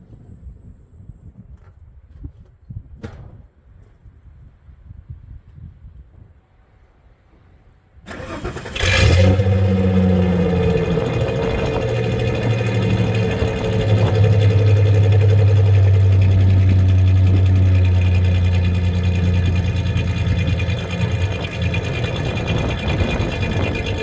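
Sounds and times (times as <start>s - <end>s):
misfiring engine idling: 8.1s - 24.0s.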